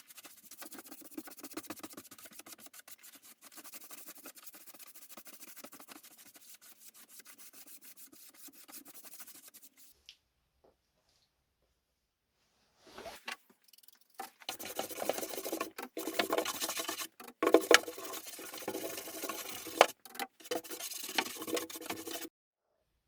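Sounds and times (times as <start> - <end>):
hand rubbing on wood: 0.0 - 9.9, 14.2 - 22.3.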